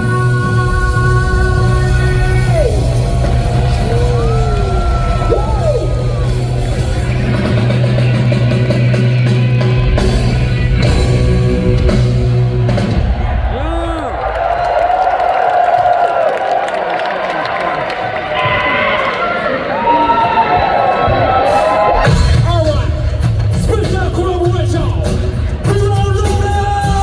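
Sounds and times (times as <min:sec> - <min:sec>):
live rock band playing: 0:00.0 - 0:13.5
singer yelling: 0:13.3 - 0:14.4.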